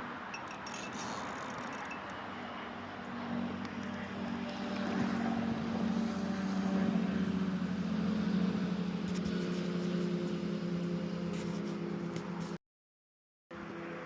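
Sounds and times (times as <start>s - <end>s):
engine droning: 0.0s - 12.6s, 13.5s - 14.0s.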